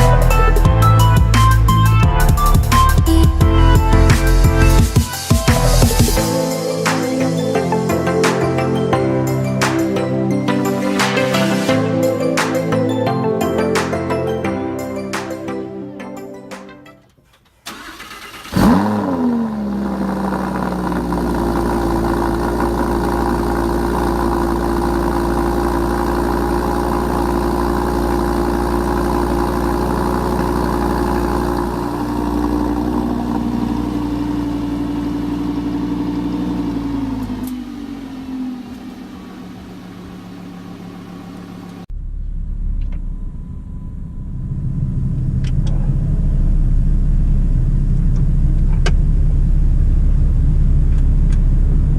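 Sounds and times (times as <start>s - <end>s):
sports car engine starting and idling: 0.0s - 7.3s, 17.4s - 51.9s
low car rumble: 18.5s - 51.9s.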